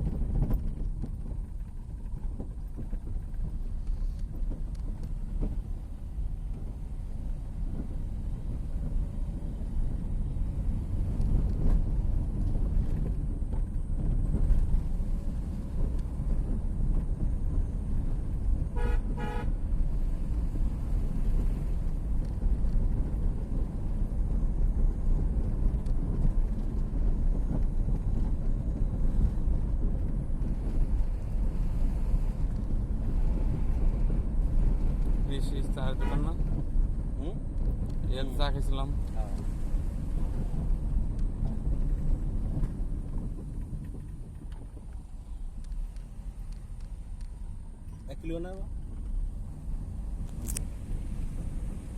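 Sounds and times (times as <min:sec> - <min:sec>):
car engine rumble: 0:00.0 - 0:51.9
road noise: 0:00.0 - 0:51.9
car horn toots: 0:18.7 - 0:19.6, 0:35.9 - 0:36.4.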